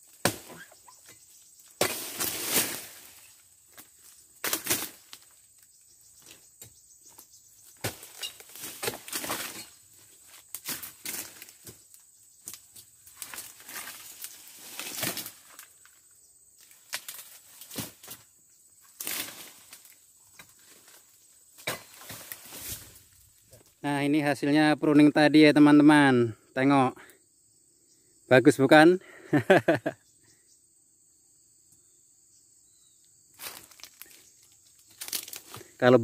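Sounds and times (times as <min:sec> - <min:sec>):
palm fronds rustling: 0:00.0 - 0:23.9, 0:33.3 - 0:36.0
chisel chopping palm fronds: 0:00.1 - 0:03.0, 0:03.7 - 0:05.2, 0:07.8 - 0:09.7, 0:14.7 - 0:15.6, 0:21.6 - 0:22.8.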